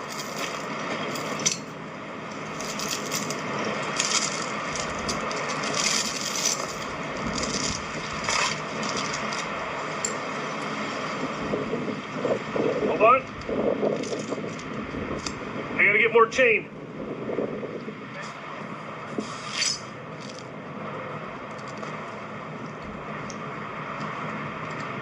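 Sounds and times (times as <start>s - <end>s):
chain links clinking and scraping: 0.0s - 1.8s, 2.4s - 10.2s
steady rushing noise: 0.0s - 25.0s.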